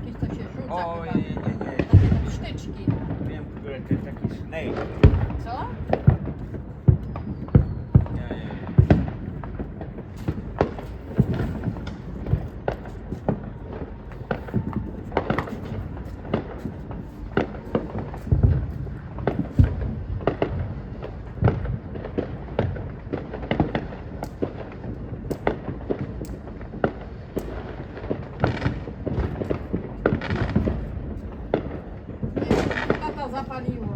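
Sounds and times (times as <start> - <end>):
deep firework boom: 0.0 - 33.9
fireworks bangs and pops: 0.0 - 33.9.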